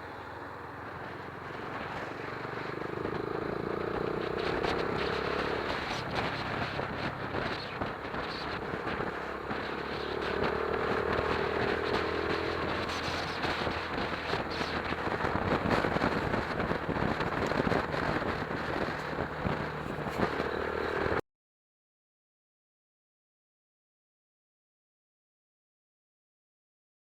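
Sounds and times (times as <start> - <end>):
motorcycle engine running: 0.0 - 21.2
wind rush over microphone: 3.0 - 21.2.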